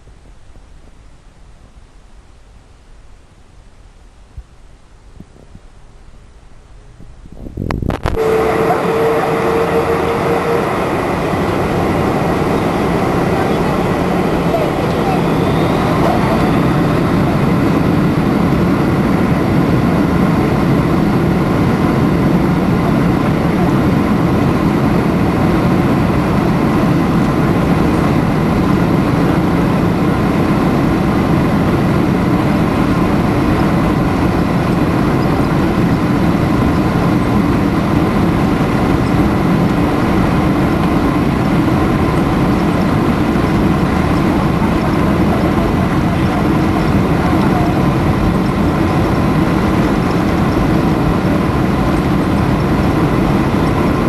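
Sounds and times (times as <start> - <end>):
jet engines droning: 7.5 - 54.0
faint high whining: 8.0 - 18.3.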